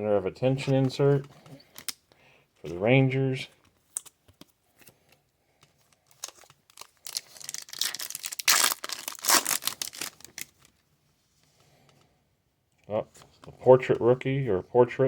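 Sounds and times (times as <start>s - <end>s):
trading cards and wrapper crinkling: 0.6s - 2.9s, 3.6s - 10.8s.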